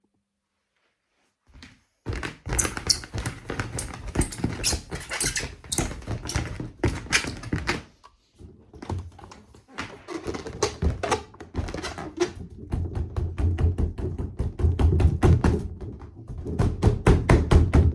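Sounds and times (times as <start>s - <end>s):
balloons squeaking and rubbing: 2.5s - 7.6s, 9.7s - 12.6s.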